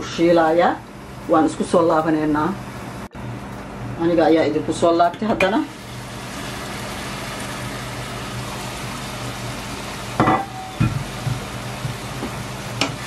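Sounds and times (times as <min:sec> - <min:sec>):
chicken sizzling in a pan: 0:05.7 - 0:13.0
glass lid clink: 0:10.2 - 0:11.0.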